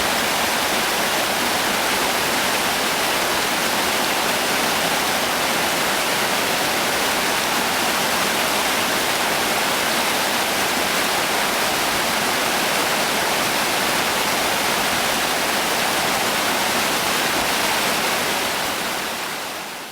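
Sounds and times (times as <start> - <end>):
mountain river rushing: 0.0 - 19.9.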